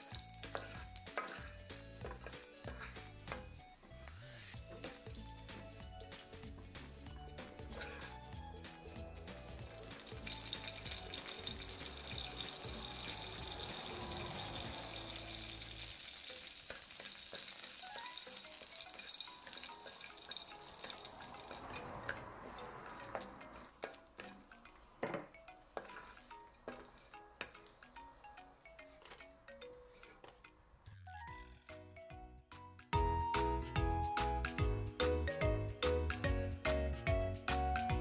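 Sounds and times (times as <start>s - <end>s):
chillies sizzling in oil: 0.0s - 24.9s
spatula tapping a wok: 16.1s - 27.7s.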